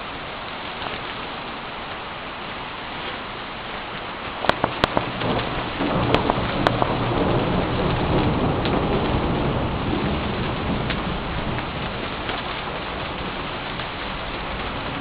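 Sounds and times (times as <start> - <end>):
heavy rain falling: 0.0 - 15.0
sharp taps: 4.4 - 5.3
thunder rumble: 4.4 - 15.0.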